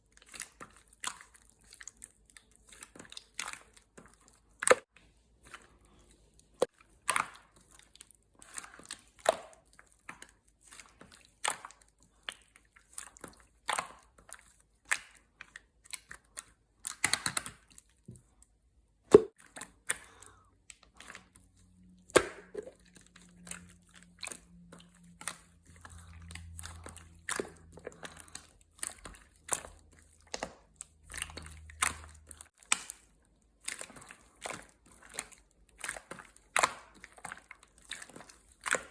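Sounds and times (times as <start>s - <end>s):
slime squished by hand: 22.0s - 38.9s.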